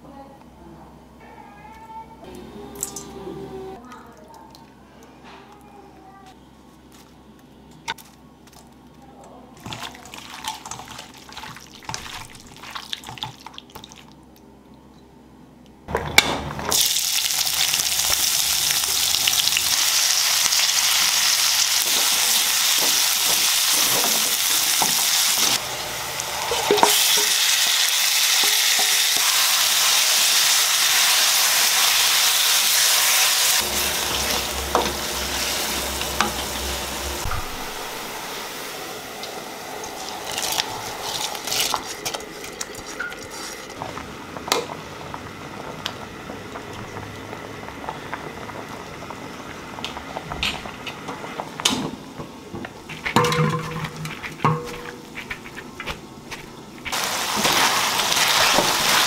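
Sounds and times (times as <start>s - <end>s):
chicken sizzling in a wok: 16.7s - 43.8s, 56.9s - 59.0s
onions sizzling in a wok: 16.7s - 51.6s, 56.3s - 59.0s.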